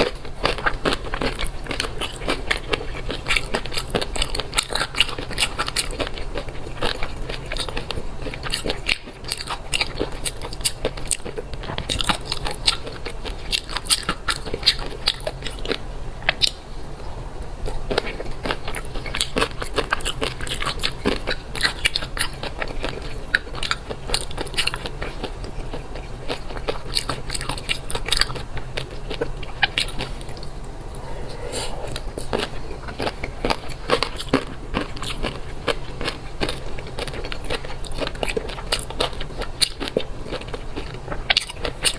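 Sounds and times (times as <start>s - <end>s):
chewing fish roe popping: 0.0s - 16.6s, 17.6s - 31.2s, 32.2s - 41.9s.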